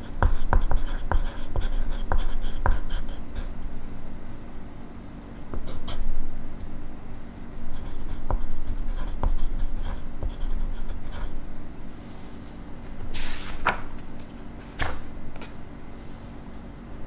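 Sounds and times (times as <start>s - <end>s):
pencil writing on paper: 0.0s - 3.5s, 5.6s - 6.1s, 7.7s - 11.4s.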